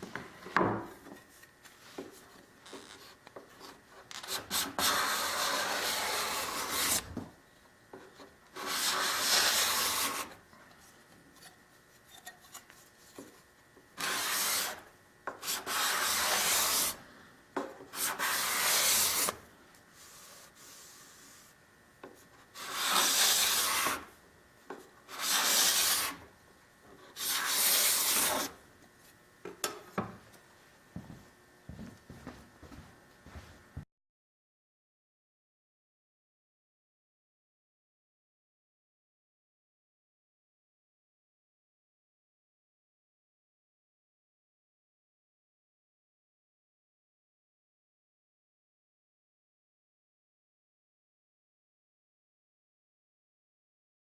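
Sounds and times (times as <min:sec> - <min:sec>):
dry rubbing on wood: 0:04.3 - 0:07.0, 0:08.6 - 0:10.3, 0:14.0 - 0:14.8, 0:15.4 - 0:17.0, 0:17.9 - 0:19.4, 0:22.6 - 0:24.1, 0:25.1 - 0:26.2.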